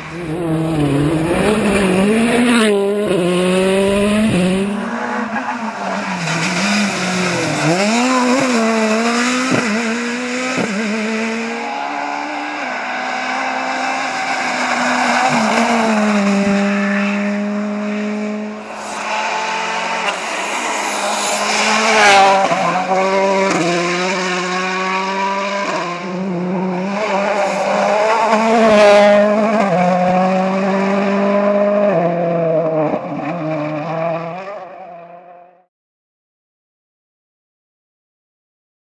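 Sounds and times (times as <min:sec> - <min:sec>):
rally car engines revving: 0:00.0 - 0:35.5
tyre squeal: 0:18.6 - 0:23.3.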